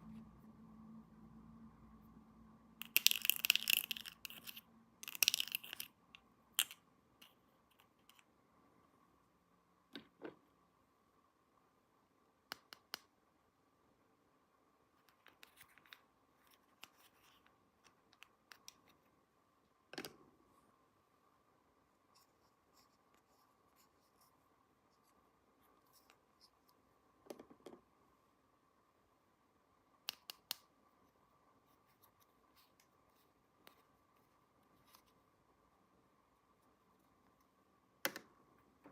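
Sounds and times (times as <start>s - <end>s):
faint steady hum: 0.0s - 38.9s
plastic toy pieces clicking: 2.8s - 5.9s.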